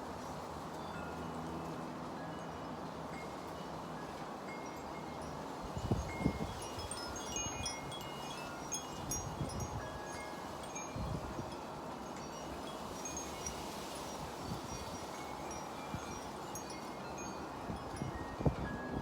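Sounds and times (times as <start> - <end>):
wind chimes ringing: 2.2 - 19.0
wind rumbling on microphone: 5.7 - 19.0.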